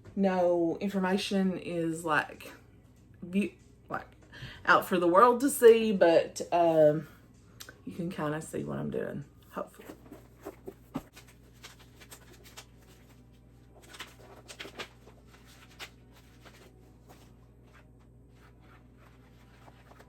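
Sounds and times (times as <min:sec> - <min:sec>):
low room hum: 0:00.0 - 0:20.0
paper rustling: 0:09.8 - 0:20.0.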